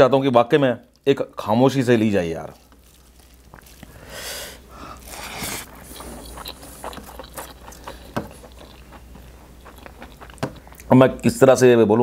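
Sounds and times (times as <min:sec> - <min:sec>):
man chewing: 0:02.5 - 0:10.9
loud breaths through the nose: 0:03.9 - 0:05.7
wet mouth clicks: 0:04.9 - 0:10.9.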